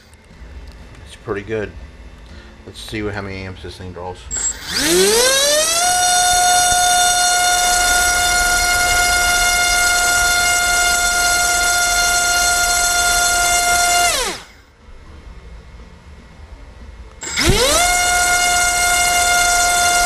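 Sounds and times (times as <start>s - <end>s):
electric motor spinning propeller: 4.3s - 14.6s, 17.2s - 20.0s.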